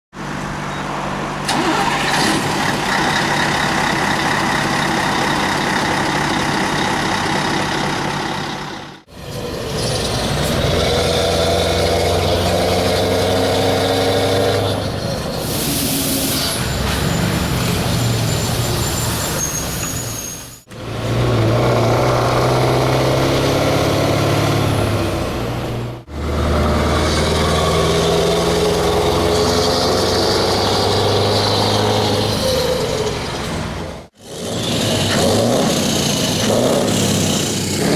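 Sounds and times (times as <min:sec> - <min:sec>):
diesel truck engine running: 0:00.2 - 0:20.0, 0:20.6 - 0:37.9
sharp hiss of air: 0:15.4 - 0:16.6.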